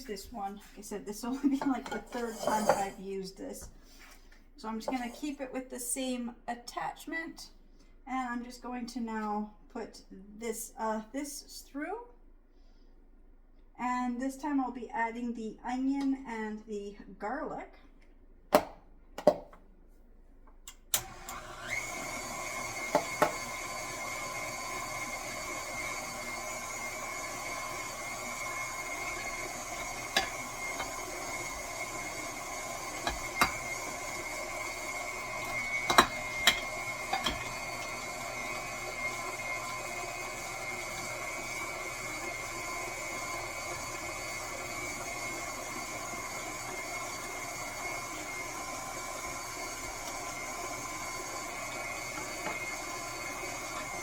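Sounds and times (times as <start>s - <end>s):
stand mixer motor whining: 21.0s - 54.0s.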